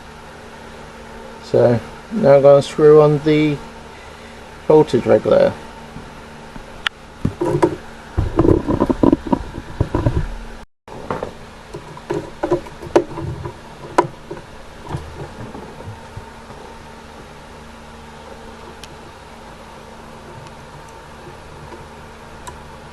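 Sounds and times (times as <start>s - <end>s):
knocks and thuds: 7.2s - 11.4s.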